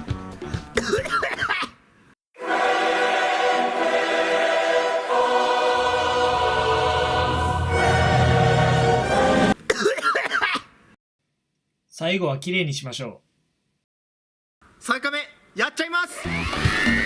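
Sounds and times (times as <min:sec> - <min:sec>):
choir singing held chord: 0:02.4 - 0:09.6.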